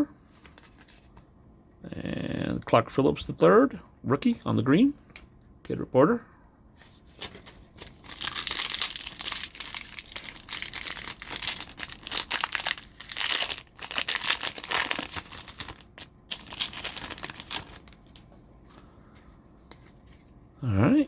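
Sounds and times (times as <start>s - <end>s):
plastic wrapper tearing and crinkling: 7.2s - 18.3s.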